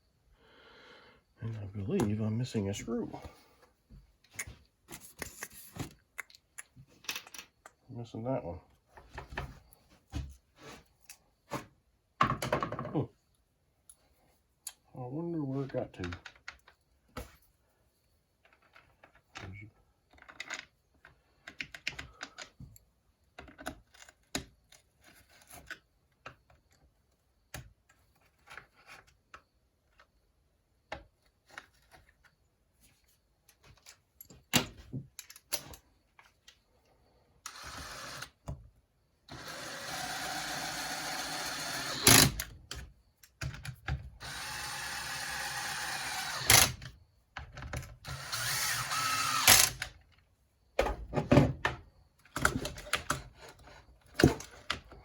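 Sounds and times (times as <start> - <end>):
power tool running: 37.5 - 38.3, 39.3 - 42.4, 44.2 - 46.8, 48.0 - 49.8.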